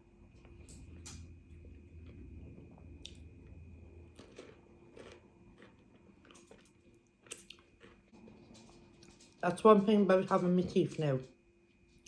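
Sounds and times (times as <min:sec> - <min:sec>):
chewing crunchy celery: 0:01.6 - 0:09.5.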